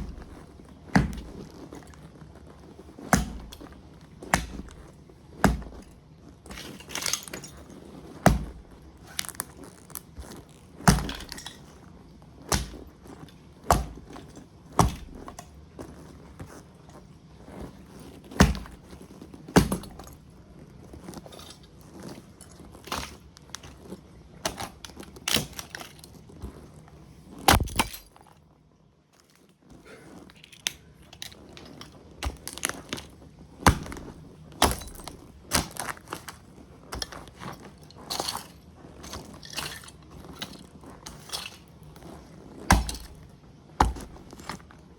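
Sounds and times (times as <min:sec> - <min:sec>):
boot stomping heavy thuds: 0:00.0 - 0:01.7, 0:03.0 - 0:06.8, 0:08.2 - 0:08.8, 0:10.3 - 0:11.5, 0:12.5 - 0:13.1, 0:13.7 - 0:15.4, 0:18.3 - 0:19.0, 0:19.6 - 0:20.2, 0:27.5 - 0:28.0, 0:33.6 - 0:35.9, 0:42.7 - 0:44.6
plastic toy cracking and crunching: 0:27.5 - 0:28.2.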